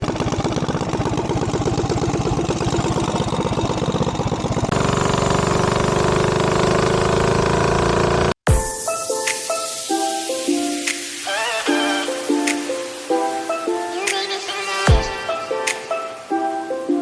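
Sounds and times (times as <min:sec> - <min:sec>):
mini bike engine: 0:00.0 - 0:08.4.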